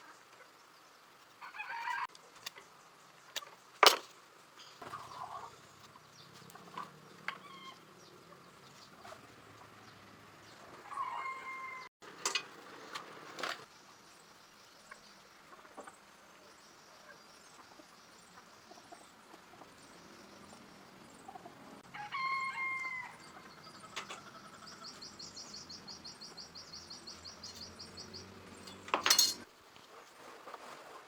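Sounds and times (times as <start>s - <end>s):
faint fowl calls: 1.4s - 2.1s, 10.7s - 11.9s.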